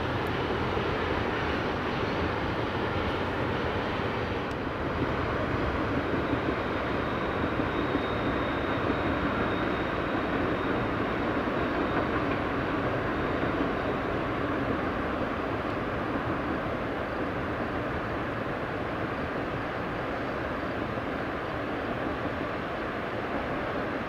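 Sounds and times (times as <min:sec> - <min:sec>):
railroad cars rumbling: 0:00.0 - 0:24.0
faint high squeal: 0:06.2 - 0:12.8.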